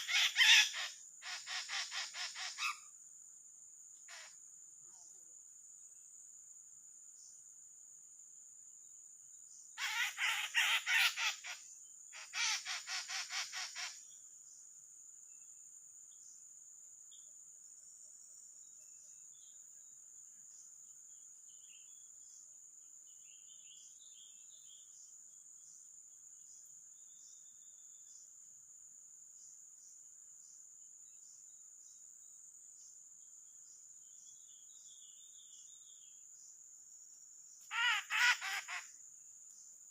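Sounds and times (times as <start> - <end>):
bird harsh rapid calls: 0.0 - 2.9, 4.1 - 4.4, 9.8 - 14.0, 37.7 - 38.9
faint bird chirps: 0.0 - 3.0, 3.9 - 5.5, 9.5 - 28.4, 32.8 - 39.9
high insect drone: 0.0 - 39.9.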